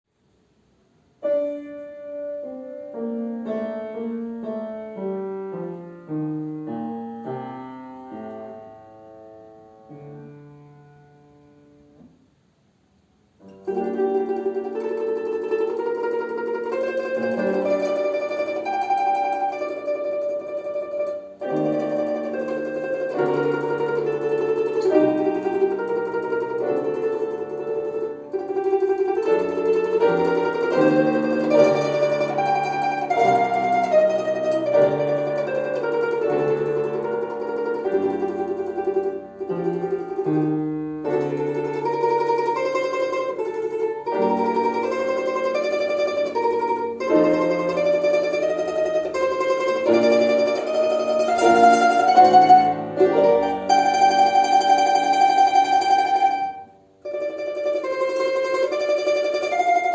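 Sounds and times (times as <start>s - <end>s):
slow piano melody: 1.2s - 12.2s, 13.4s - 59.9s
plucked string instrument: 1.2s - 12.4s, 13.3s - 59.9s.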